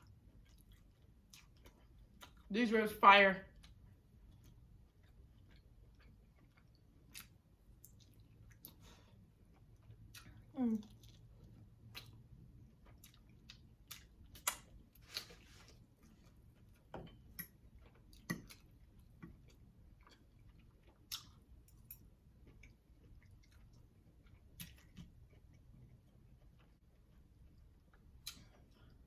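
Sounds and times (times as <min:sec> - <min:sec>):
quiet chewing: 0:00.0 - 0:02.5, 0:03.5 - 0:29.0
wet clicks and lip smacks: 0:13.1 - 0:15.3, 0:28.2 - 0:28.7.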